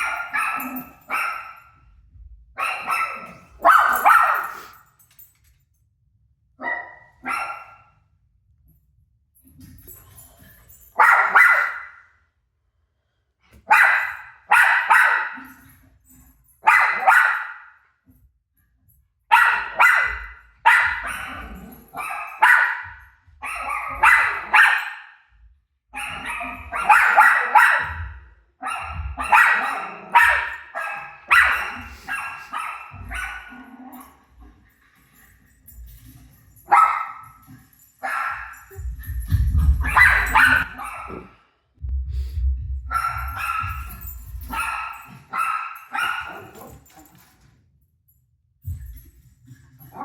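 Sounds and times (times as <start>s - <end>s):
dog barking: 0.0s - 1.7s, 2.6s - 4.8s, 6.6s - 7.9s, 11.0s - 12.1s, 13.6s - 15.6s, 16.6s - 17.8s, 19.3s - 25.2s, 26.0s - 33.7s, 36.7s - 37.4s, 38.0s - 41.4s, 42.9s - 46.8s
recorded barking on tv: 0.0s - 1.9s, 2.6s - 4.8s, 6.6s - 8.1s, 11.0s - 12.2s, 13.5s - 15.7s, 16.6s - 17.8s, 19.3s - 25.3s, 25.9s - 34.3s, 36.6s - 41.4s, 42.8s - 47.2s, 49.8s - 50.0s.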